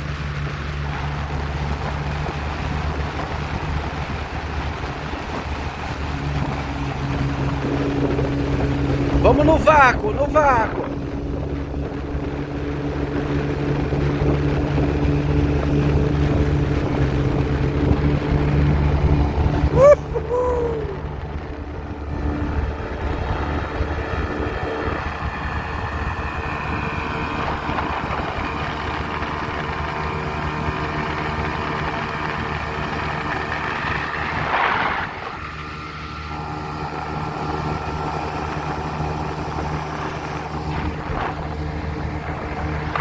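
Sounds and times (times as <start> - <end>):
small boat motor running: 0.0 - 43.0
wind: 0.0 - 43.0
water rushing: 14.0 - 25.0.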